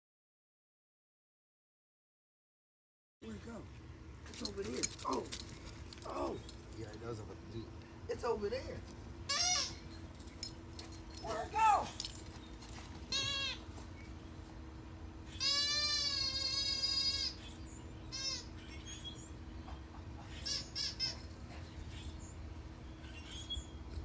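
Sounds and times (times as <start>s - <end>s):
squeaky dog toy squeaking: 9.3s - 10.4s, 13.1s - 13.7s, 15.3s - 17.4s, 18.1s - 18.5s, 20.4s - 21.5s.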